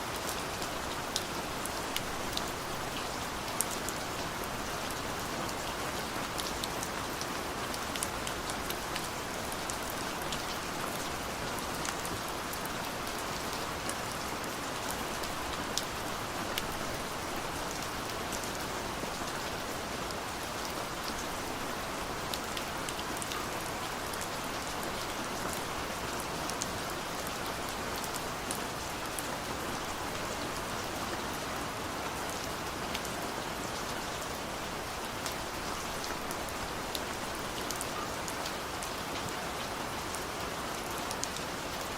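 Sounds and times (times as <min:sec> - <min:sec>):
steady rain falling: 0:00.0 - 0:41.9
raindrops ticking on a surface: 0:32.2 - 0:41.9.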